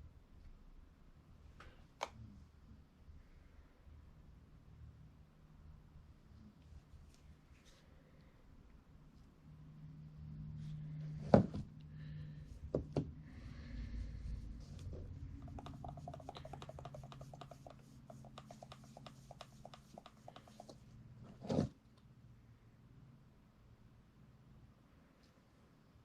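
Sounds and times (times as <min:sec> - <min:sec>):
fast light ticks: 0:15.4 - 0:20.8.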